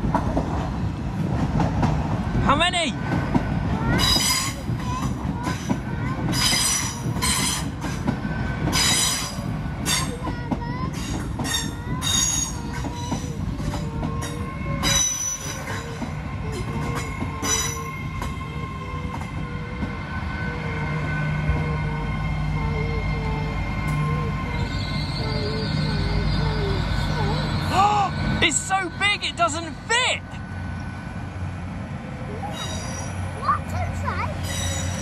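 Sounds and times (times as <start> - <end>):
low train rumble: 0.0 - 35.0
train wheels squealing: 4.0 - 5.7, 6.3 - 7.7, 8.7 - 10.2, 11.0 - 19.6, 20.3 - 29.1, 32.4 - 33.3, 34.4 - 35.0
crossing warning alarm tones: 11.0 - 30.1.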